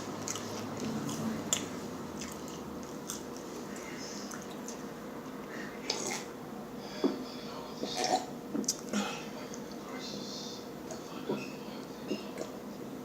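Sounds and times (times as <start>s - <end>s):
person chewing: 0.0s - 4.8s.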